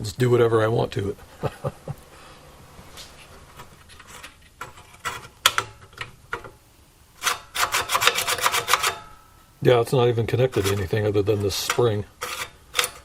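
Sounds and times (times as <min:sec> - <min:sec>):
sharp metal clicks of hand tools: 0:11.6 - 0:13.0.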